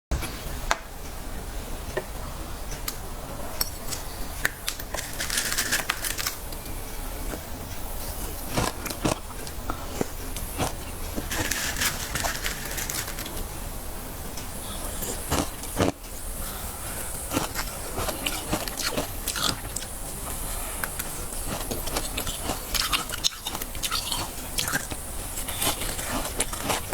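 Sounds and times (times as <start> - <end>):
frost scraping in freezer: 3.8 - 6.5, 8.0 - 13.6.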